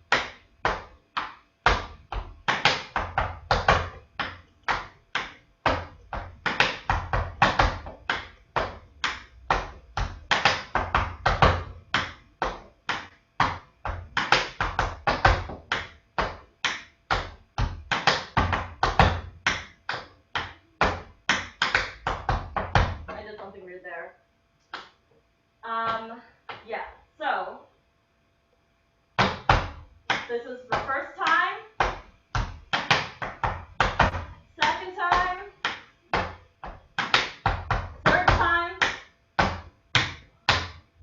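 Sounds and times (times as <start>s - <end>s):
tap shoes on hard floor: 29.2s - 40.8s.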